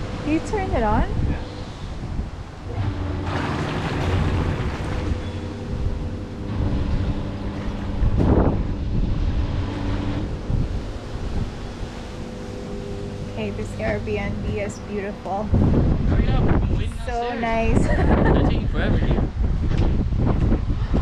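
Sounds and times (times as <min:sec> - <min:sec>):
churning bubbling water: 0:00.0 - 0:16.1
pump motor hum: 0:00.0 - 0:16.1
water gush: 0:02.8 - 0:08.4.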